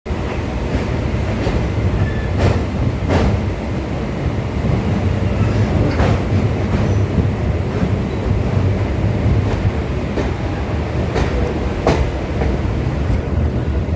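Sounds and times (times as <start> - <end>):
train wheels rumbling on rail: 0.0 - 13.9
wheels clacking over rail joints: 4.7 - 13.3.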